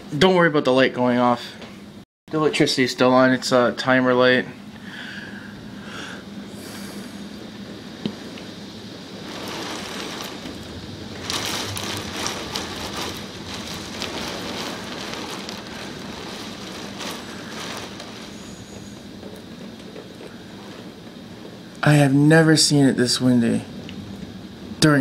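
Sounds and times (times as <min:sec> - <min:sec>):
strong wind: 0:06.2 - 0:19.9
heavy rain: 0:07.8 - 0:22.3.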